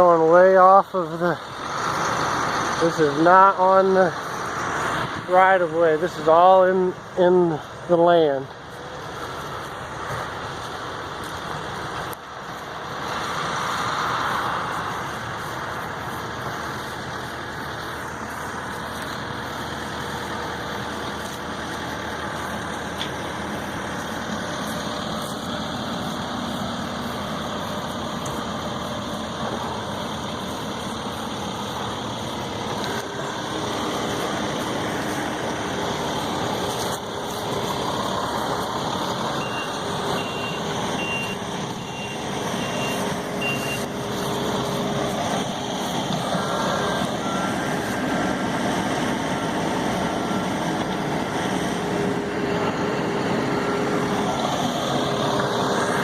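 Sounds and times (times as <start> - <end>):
heavy machinery engines running: 0.0 - 56.0
reversing alarm beeping: 39.2 - 44.0, 46.3 - 51.0.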